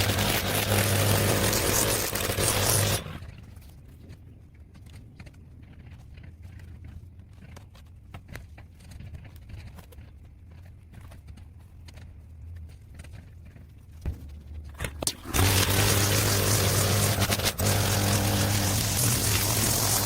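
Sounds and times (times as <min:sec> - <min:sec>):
small engine humming: 0:00.0 - 0:03.6, 0:14.8 - 0:20.0.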